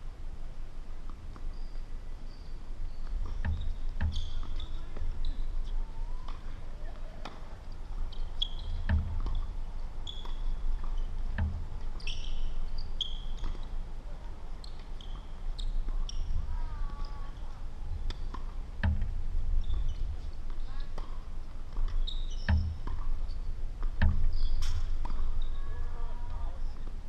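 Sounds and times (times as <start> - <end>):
tennis ball bouncing: 3.0 - 7.5, 8.1 - 13.8, 14.6 - 25.5
racket striking tennis ball: 8.6 - 12.4, 23.8 - 25.3.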